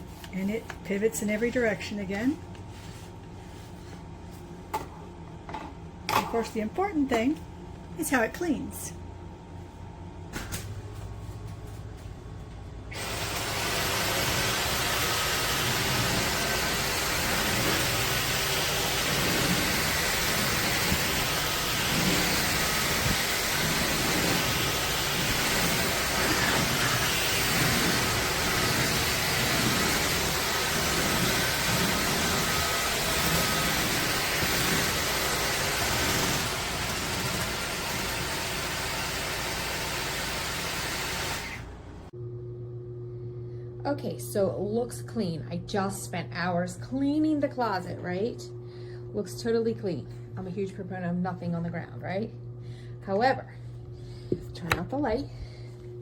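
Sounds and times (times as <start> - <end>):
cordless vacuum whirring: 12.9 - 41.8.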